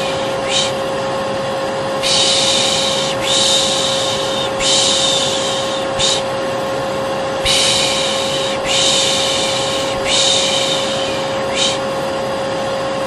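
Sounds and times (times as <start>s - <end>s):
person shushing: 0.0s - 0.8s, 2.0s - 6.3s, 7.4s - 11.9s
vacuum cleaner humming: 0.0s - 13.0s.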